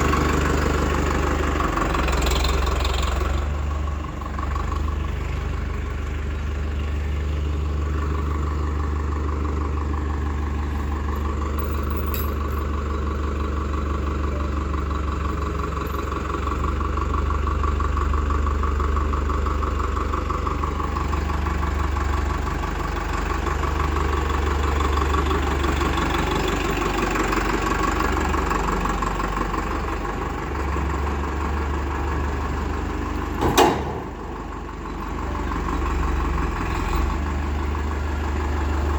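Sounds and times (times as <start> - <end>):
diesel engine idling: 0.0 - 38.9
sharp knock: 33.4 - 34.2.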